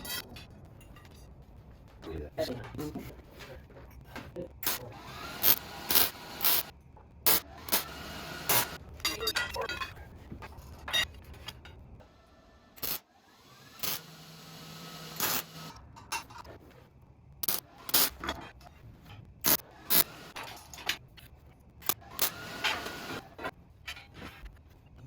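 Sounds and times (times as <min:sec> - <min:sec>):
small motor running: 0:04.6 - 0:06.7, 0:07.3 - 0:08.8, 0:12.8 - 0:15.7, 0:19.8 - 0:20.5, 0:21.9 - 0:23.4
knocks and clanks of parts: 0:17.4 - 0:24.4.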